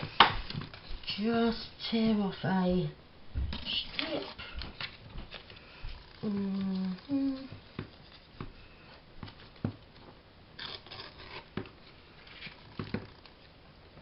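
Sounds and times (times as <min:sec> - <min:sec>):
paper rustling and tapping: 0:00.0 - 0:01.2, 0:09.2 - 0:10.2, 0:12.4 - 0:13.3
paper tearing: 0:10.6 - 0:11.6.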